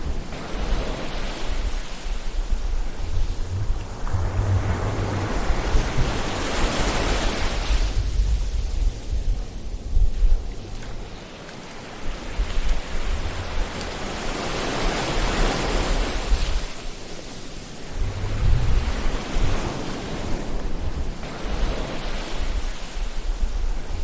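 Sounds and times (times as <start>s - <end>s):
low rumbles: 0.0s - 11.3s, 17.8s - 21.3s
ocean waves washing in: 0.0s - 24.0s.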